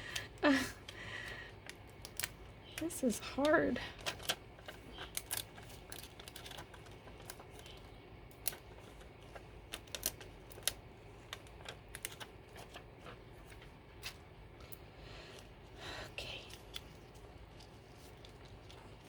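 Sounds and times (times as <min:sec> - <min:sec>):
paper materials clicking and tapping: 0:01.6 - 0:14.8.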